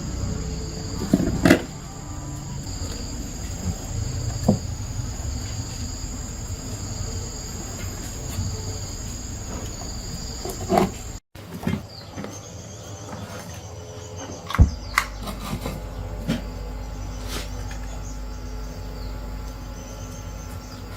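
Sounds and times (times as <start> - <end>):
low rumble: 0.0 - 10.4
insects trilling: 0.0 - 20.9.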